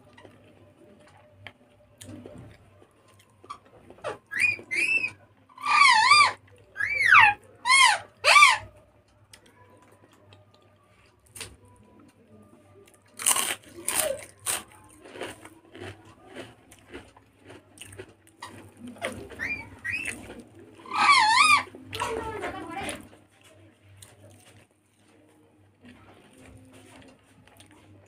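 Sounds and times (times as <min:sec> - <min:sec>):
crunchy chewing: 0:00.0 - 0:05.1, 0:12.8 - 0:22.2, 0:22.8 - 0:28.0
high wavering animal calls: 0:04.2 - 0:08.8, 0:19.3 - 0:21.8
crunching bites into fried food: 0:13.1 - 0:19.2.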